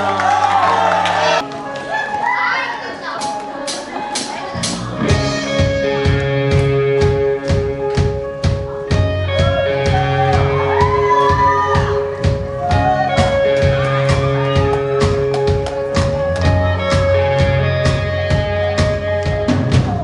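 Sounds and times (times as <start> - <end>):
drum kit beat: 3.2 - 20.0
rock band playing: 3.2 - 20.0
bending lead guitar line: 4.6 - 20.0.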